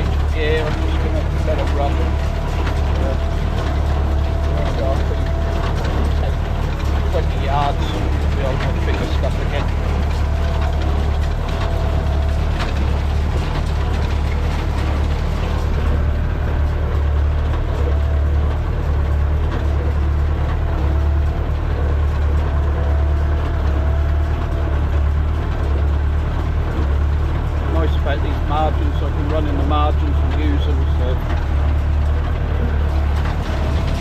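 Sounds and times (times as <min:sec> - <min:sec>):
hay baler mechanism working: 0:00.0 - 0:34.0
tractor diesel engine running: 0:00.0 - 0:34.0.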